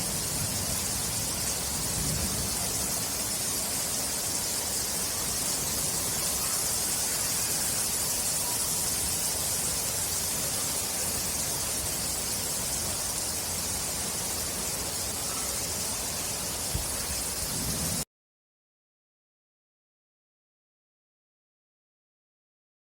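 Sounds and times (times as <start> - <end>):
heavy rain hissing: 0.0 - 18.1.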